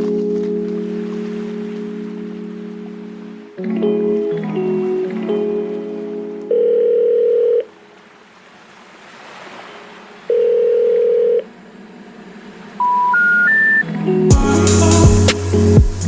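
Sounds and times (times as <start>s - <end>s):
telephone ringback beeps: 6.5s - 7.7s, 10.3s - 11.4s, 12.8s - 13.8s
rising three-tone beeps: 12.8s - 13.9s
faint hiss: 14.4s - 16.0s.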